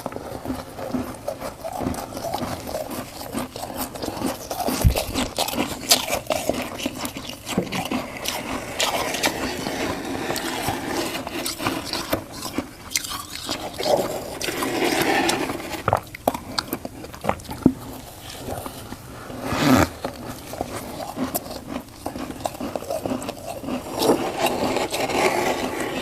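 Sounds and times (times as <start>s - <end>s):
frost crunching: 0.0s - 26.0s.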